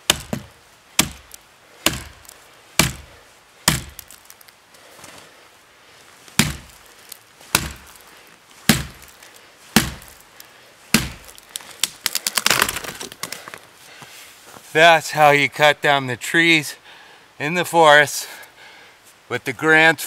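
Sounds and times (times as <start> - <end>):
axe chopping into tree trunk: 0.0 - 4.2, 6.4 - 6.8, 7.5 - 8.0, 8.7 - 9.2, 9.8 - 10.2, 10.9 - 13.3
wood cracking and splintering: 0.1 - 4.6, 6.3 - 8.1, 8.7 - 13.7.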